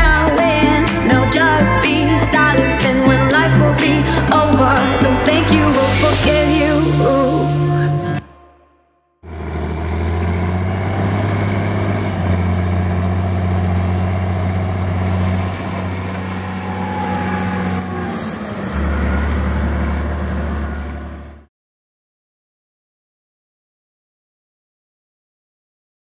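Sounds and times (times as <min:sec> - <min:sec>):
tractor diesel engine running: 0:00.0 - 0:07.2, 0:09.2 - 0:21.5.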